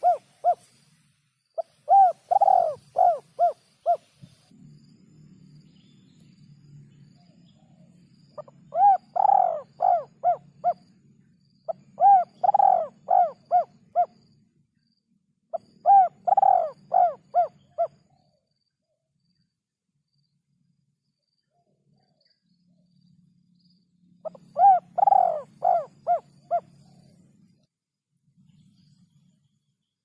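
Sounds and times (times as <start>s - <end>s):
dove cooing: 0.0s - 0.8s, 1.6s - 4.2s, 8.4s - 10.9s, 11.7s - 14.2s, 15.5s - 18.2s, 24.2s - 27.2s.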